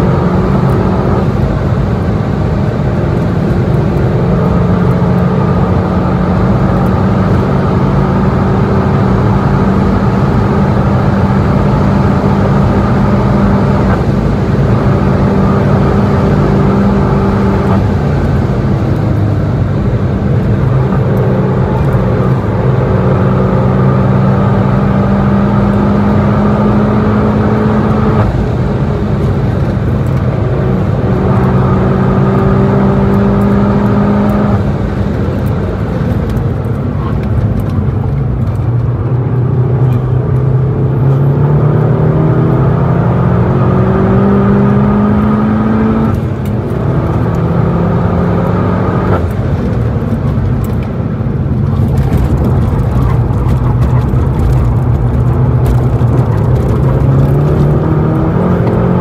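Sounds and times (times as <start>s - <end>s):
car engine at high speed: 0.0s - 59.0s.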